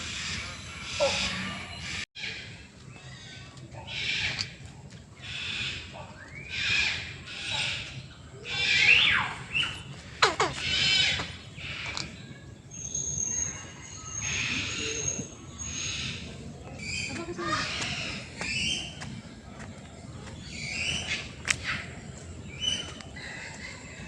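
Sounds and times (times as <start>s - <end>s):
birds squawking: 0.0s - 4.6s, 5.2s - 12.2s
rising whistled bird calls: 8.5s - 9.9s.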